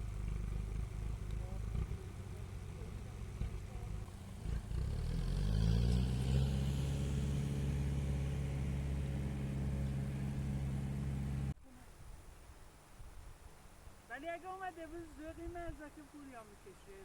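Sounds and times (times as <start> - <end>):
engine revving: 0.0 - 11.6.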